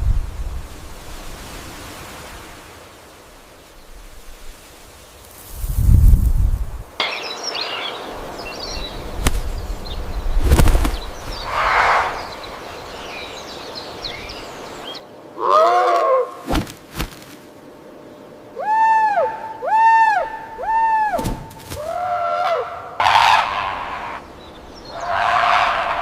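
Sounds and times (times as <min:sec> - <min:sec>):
wind rumble: 0:00.0 - 0:02.6, 0:03.8 - 0:07.0, 0:08.0 - 0:15.4
birds chirping: 0:07.0 - 0:15.5, 0:19.2 - 0:26.0
loud arched bird call: 0:11.4 - 0:12.6, 0:18.6 - 0:26.0.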